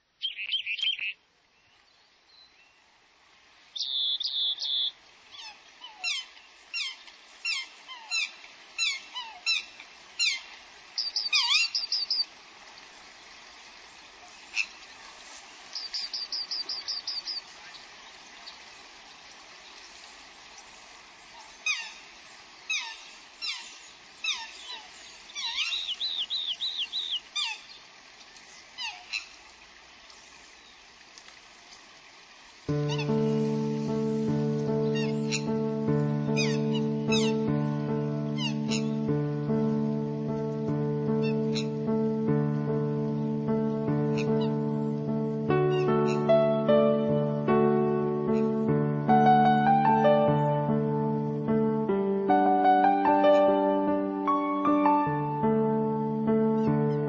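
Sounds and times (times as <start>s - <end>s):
steady background hiss: 0.0s - 57.0s
bird trills: 0.2s - 1.2s, 3.8s - 12.3s, 15.7s - 18.6s, 21.2s - 27.9s, 32.7s - 35.7s, 36.3s - 39.1s, 41.2s - 41.8s, 44.1s - 46.4s
birds whistling downward notes: 3.8s - 9.6s, 11.0s - 12.3s, 15.7s - 17.8s, 20.6s - 27.9s, 32.7s - 40.0s.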